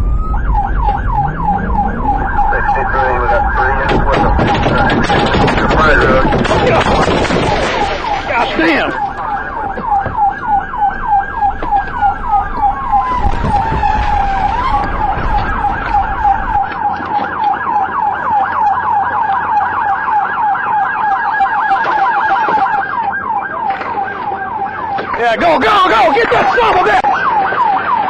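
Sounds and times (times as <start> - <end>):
police siren yelping: 0.0 - 28.0
wailing siren: 0.0 - 28.0.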